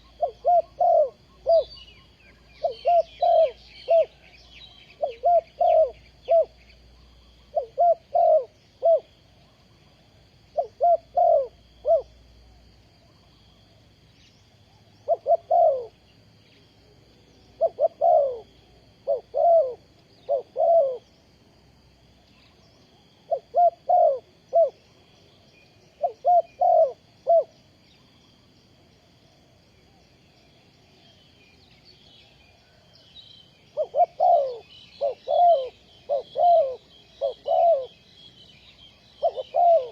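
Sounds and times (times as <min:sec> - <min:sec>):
dove cooing: 0:00.0 - 0:06.7, 0:07.4 - 0:12.2, 0:15.0 - 0:16.0, 0:17.5 - 0:21.2, 0:23.2 - 0:24.9, 0:25.9 - 0:27.6, 0:33.7 - 0:38.0, 0:38.9 - 0:39.9.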